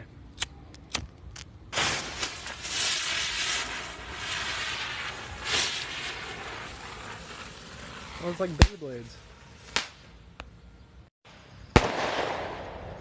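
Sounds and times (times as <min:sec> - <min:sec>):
fireworks fizzing hiss: 0:01.7 - 0:10.1.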